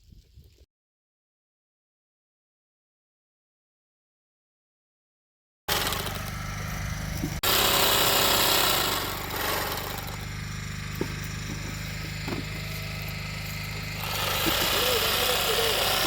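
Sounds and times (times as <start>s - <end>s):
motor running with low hum: 5.7s - 16.0s.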